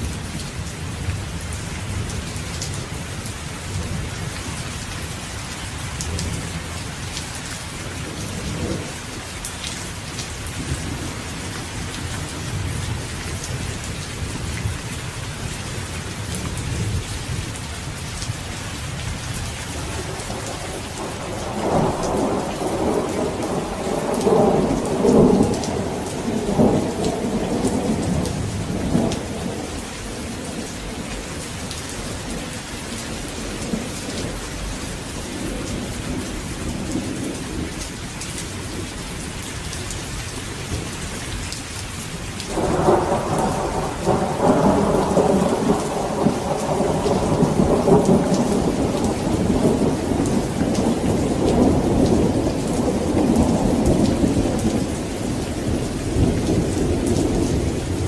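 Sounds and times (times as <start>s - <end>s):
heavy rain falling: 0.0s - 58.0s
thunder rolling: 20.0s - 29.7s, 42.5s - 58.0s.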